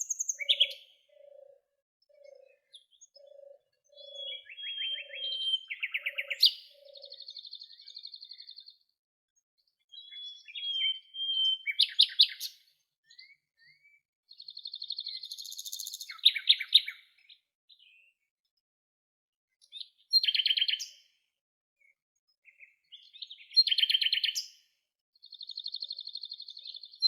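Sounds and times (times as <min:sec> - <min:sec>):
songbird whistles and trills: 0:00.0 - 0:08.6, 0:09.8 - 0:17.0, 0:20.1 - 0:21.0.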